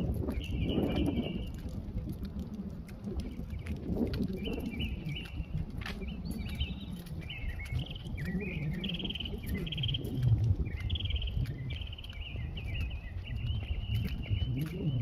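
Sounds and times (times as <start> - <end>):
wind rumble: 0.0 - 15.0.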